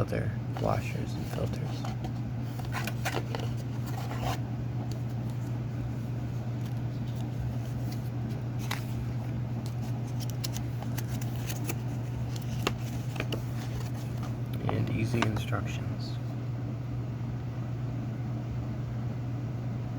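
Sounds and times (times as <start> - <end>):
steady low hum: 0.0 - 19.9
packaging rustling and clicking: 1.3 - 5.5, 6.6 - 15.4.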